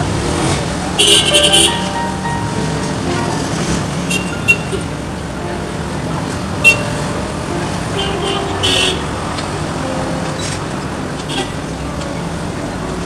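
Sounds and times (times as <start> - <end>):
road traffic: 0.0 - 13.0
car horn toot: 1.0 - 2.1, 6.5 - 7.1, 8.0 - 9.5.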